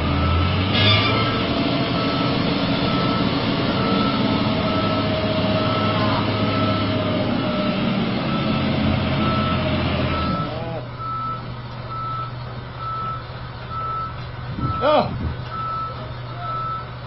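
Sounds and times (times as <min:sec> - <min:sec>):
truck engine running: 0:00.0 - 0:17.0
reversing alarm beeps: 0:00.1 - 0:00.6, 0:01.9 - 0:07.0, 0:08.3 - 0:14.9, 0:15.5 - 0:16.9.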